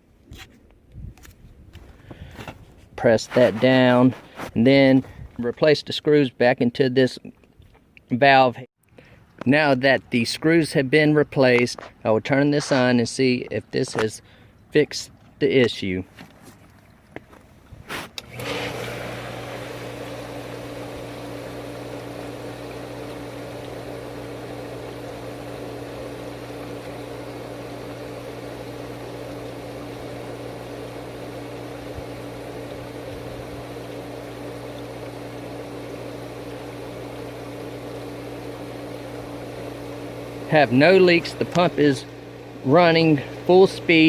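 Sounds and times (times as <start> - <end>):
pool pump motor humming: 14.2 - 44.0.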